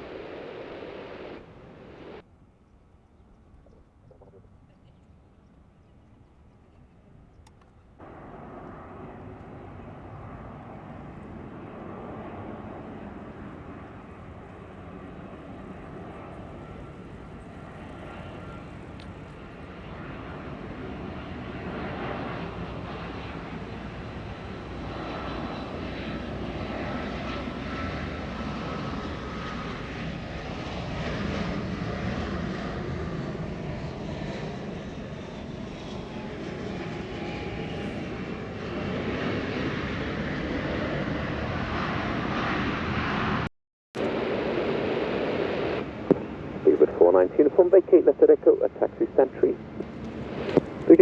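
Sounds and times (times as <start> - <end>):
high engine whine falling in pitch: 0.0 - 2.2
jet engine roar: 0.0 - 2.2, 8.0 - 51.0.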